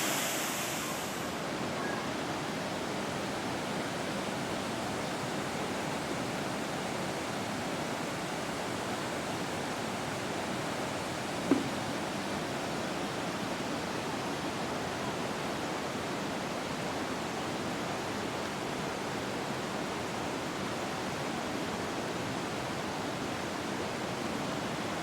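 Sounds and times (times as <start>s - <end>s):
waterfall rushing: 0.0s - 1.8s.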